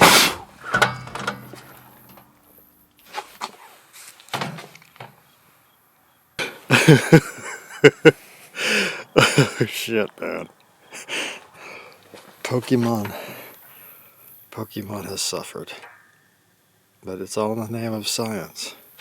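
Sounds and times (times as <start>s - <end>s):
man coughing and gasping: 6.7s - 10.4s.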